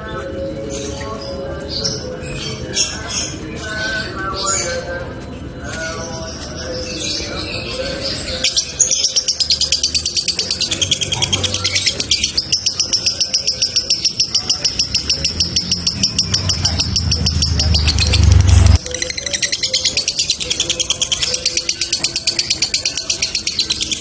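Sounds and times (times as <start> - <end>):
lovebird chattering trill: 8.3 - 24.0
low rumble: 15.9 - 18.9.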